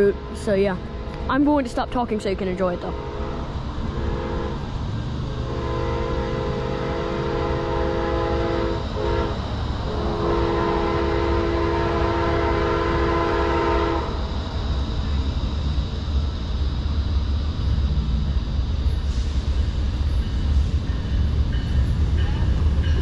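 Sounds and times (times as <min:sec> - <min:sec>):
low rumble of train: 0:00.0 - 0:23.0
train air horn blasts: 0:02.7 - 0:14.2.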